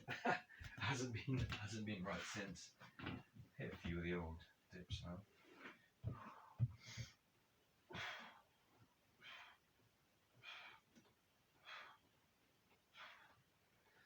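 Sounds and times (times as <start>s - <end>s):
man breathing hard: 10.3s - 12.2s, 12.8s - 14.0s.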